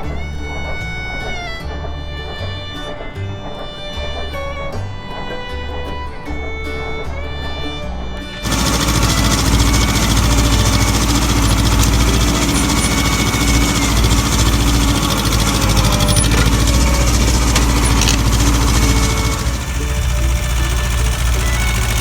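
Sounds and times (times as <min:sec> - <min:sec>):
fiddle and guitar music: 0:00.0 - 0:22.0
tractor diesel engine running: 0:08.4 - 0:22.0.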